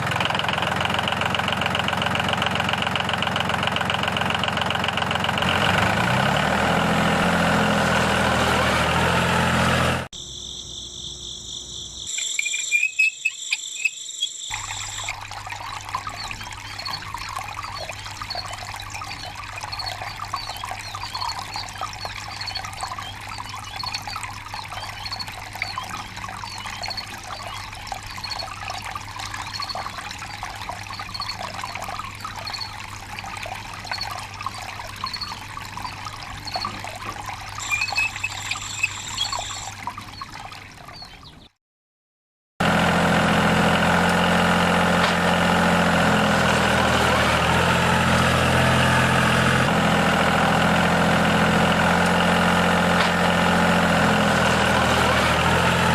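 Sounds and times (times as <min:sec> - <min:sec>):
tractor engine running: 0:00.0 - 0:10.1, 0:42.6 - 0:55.9
water pouring from pump: 0:00.0 - 0:10.1, 0:14.5 - 0:41.4, 0:42.6 - 0:55.9.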